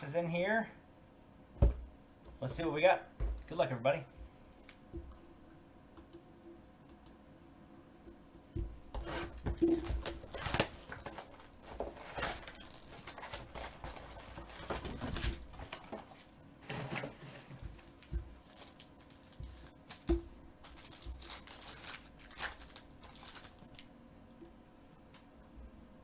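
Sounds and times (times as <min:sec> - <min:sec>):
foil wrappers crinkling and tearing: 0:09.2 - 0:23.9.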